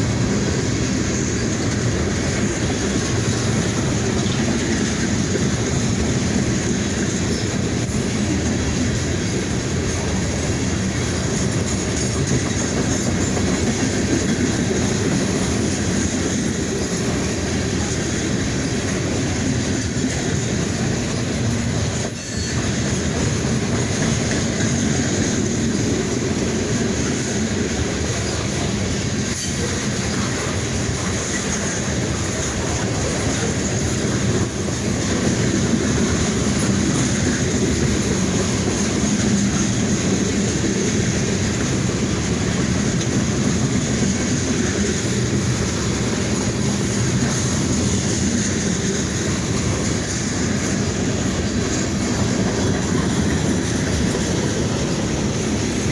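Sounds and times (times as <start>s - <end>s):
freight train wheels rumbling on rails: 0.0s - 55.9s
wheels clattering over rail joints: 0.0s - 55.9s.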